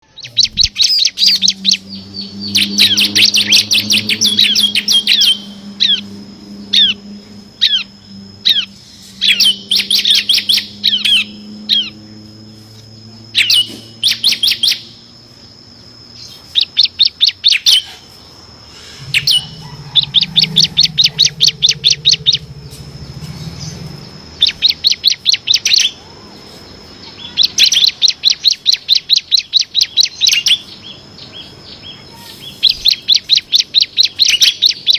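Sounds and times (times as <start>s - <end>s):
low hum: 0.0s - 17.2s, 18.1s - 25.6s
bird singing rapid chips: 0.0s - 34.9s
faint high whine: 0.0s - 34.9s.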